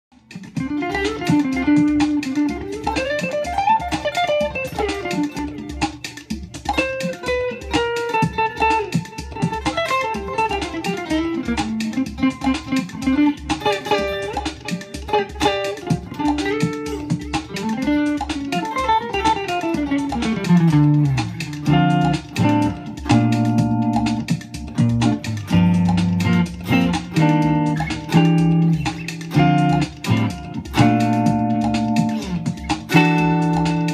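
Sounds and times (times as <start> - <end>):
backing track with steady beat: 0.1 - 33.9
electric guitar riffs: 0.2 - 33.9.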